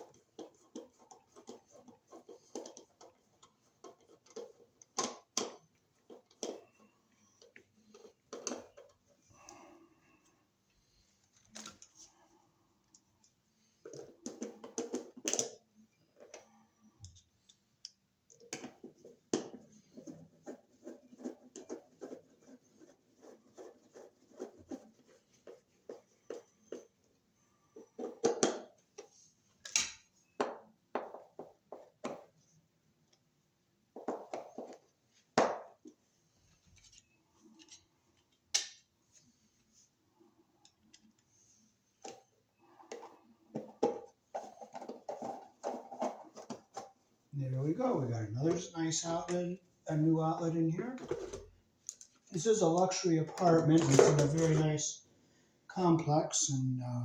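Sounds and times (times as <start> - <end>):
wires and screwdriver scraping and rattling: 42.1 - 47.0.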